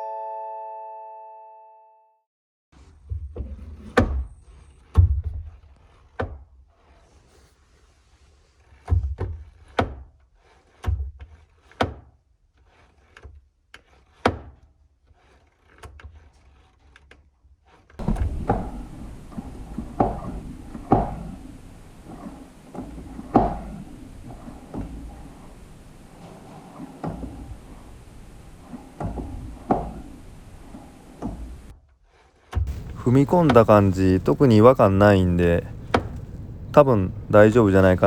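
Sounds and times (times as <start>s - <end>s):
sharp knocks and clunks: 18.0s - 31.7s, 32.7s - 38.0s
steady background noise: 18.0s - 31.7s, 32.7s - 38.0s.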